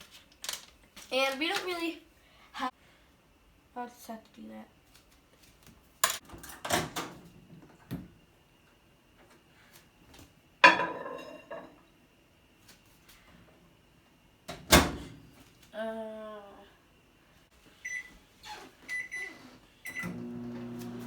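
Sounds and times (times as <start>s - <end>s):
dishes clinking and knocking: 10.6s - 11.8s.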